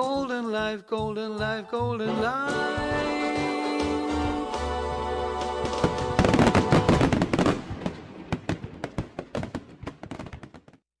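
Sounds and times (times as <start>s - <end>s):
fireworks bangs and crackles: 5.5s - 10.9s.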